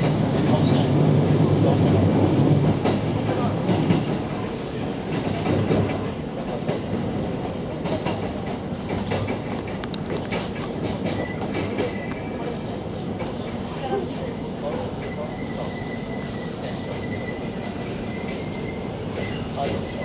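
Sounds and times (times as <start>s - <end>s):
train wheels rumbling on rails: 0.0s - 20.0s
brief high squeaks: 15.0s - 20.0s.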